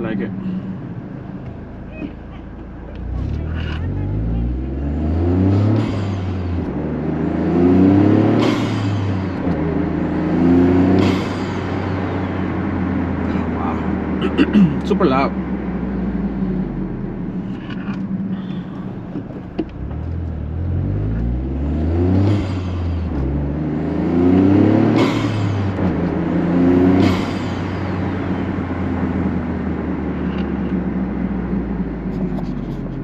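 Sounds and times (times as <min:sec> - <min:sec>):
car engine accelerating: 0:00.0 - 0:33.0.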